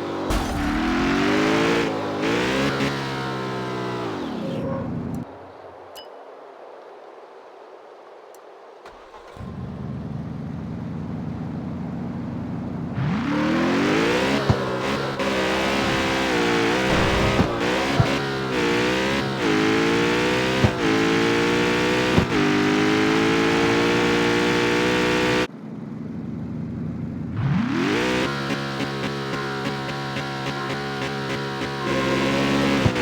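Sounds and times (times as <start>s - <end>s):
car engine accelerating through gears: 0.0s - 5.2s, 12.9s - 25.5s, 27.4s - 33.0s
exhaust cracks: 0.3s - 2.2s, 14.2s - 19.5s.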